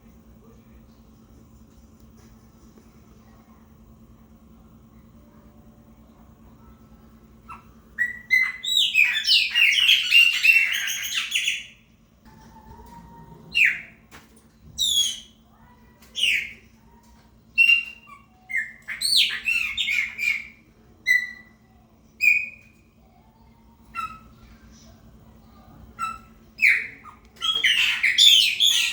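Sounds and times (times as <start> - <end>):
blackbird singing: 7.5 - 11.8, 13.5 - 14.0, 14.8 - 15.4, 16.2 - 16.6, 17.6 - 21.6, 22.2 - 22.8, 26.0 - 28.9.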